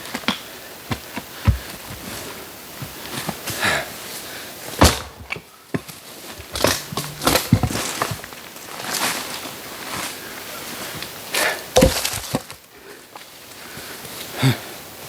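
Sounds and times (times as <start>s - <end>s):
hard objects knocking and clattering: 4.8s - 8.4s, 11.8s - 12.5s.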